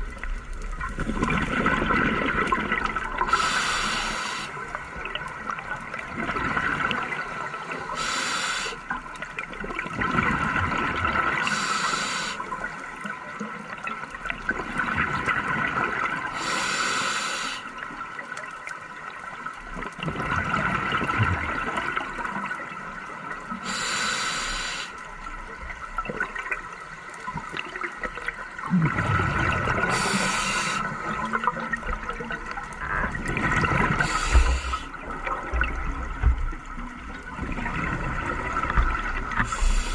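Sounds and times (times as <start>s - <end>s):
steady watery background: 0.0s - 39.9s
bubbles rushing out: 0.8s - 3.3s, 28.6s - 30.0s, 31.1s - 36.2s, 37.2s - 39.4s
diver breathing through regulator: 3.3s - 4.6s, 7.9s - 8.8s, 11.4s - 12.5s, 16.4s - 17.7s, 23.6s - 25.0s, 29.9s - 31.3s, 34.0s - 35.0s, 39.4s - 39.9s.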